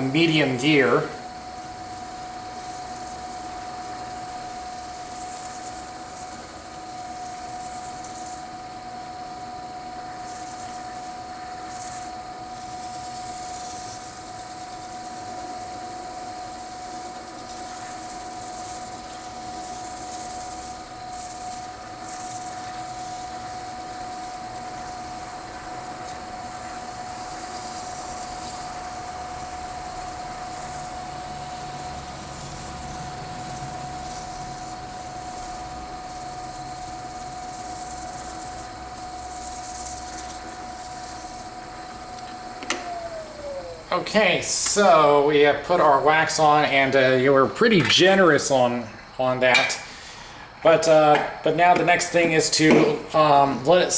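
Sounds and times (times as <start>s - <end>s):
wood lathe motor whine: 0.0s - 53.9s.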